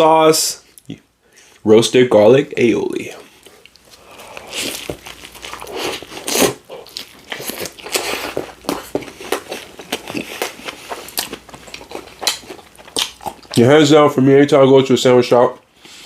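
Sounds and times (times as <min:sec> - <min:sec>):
biting and chewing sandwich: 0:03.3 - 0:13.7.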